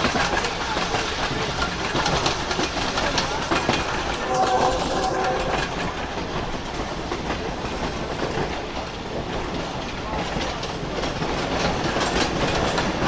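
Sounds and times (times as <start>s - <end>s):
train rumble: 3.3s - 6.8s
steady tone: 3.9s - 6.5s.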